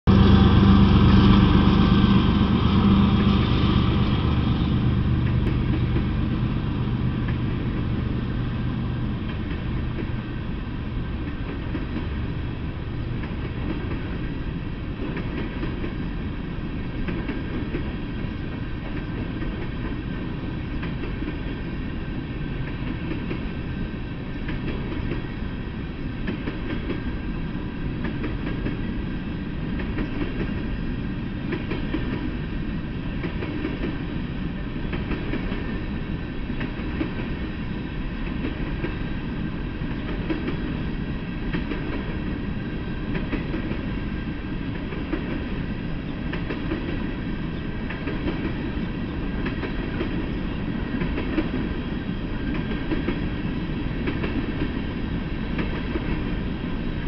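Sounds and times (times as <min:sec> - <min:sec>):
diesel locomotive engines droning: 0:00.0 - 0:57.0
freight cars rumbling and rattling: 0:00.1 - 0:14.1.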